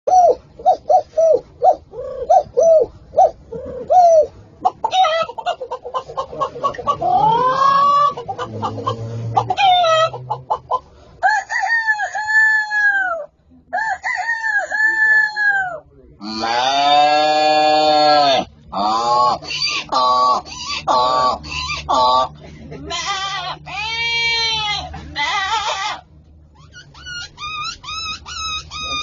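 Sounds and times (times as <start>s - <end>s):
chicken clucking: 3.5s - 11.0s
rooster crowing: 11.2s - 15.8s.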